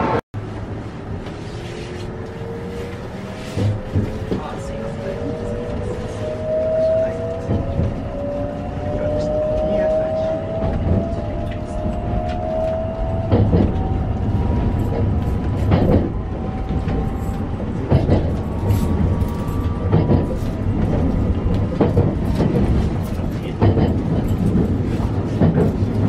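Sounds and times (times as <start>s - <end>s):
train wheels rumbling on track: 0.0s - 26.0s
clunk from track: 14.8s - 16.2s, 17.9s - 26.0s.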